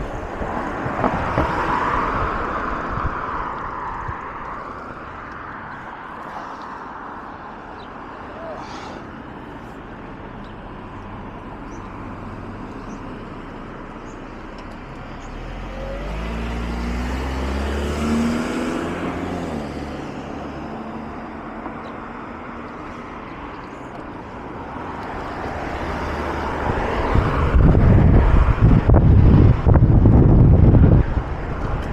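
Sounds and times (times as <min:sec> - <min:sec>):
wind buffeting microphone: 0:00.0 - 0:06.2, 0:25.1 - 0:31.9
road traffic hiss: 0:00.0 - 0:28.5
car driving past: 0:15.2 - 0:21.1.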